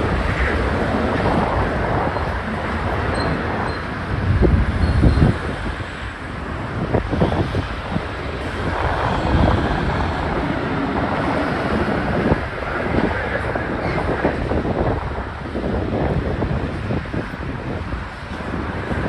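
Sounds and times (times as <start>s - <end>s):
train wheels rumbling on track: 0.0s - 19.0s.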